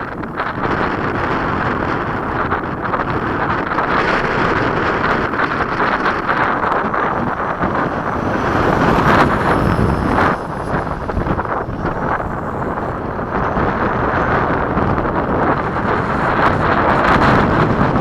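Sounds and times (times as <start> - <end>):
wind buffeting microphone: 0.0 - 18.0
model jet rushing past: 0.1 - 18.0
high whine: 2.1 - 18.0.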